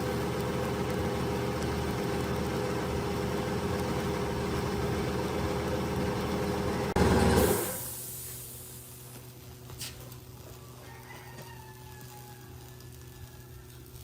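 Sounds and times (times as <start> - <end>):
motor-driven machine humming: 0.0 - 7.8.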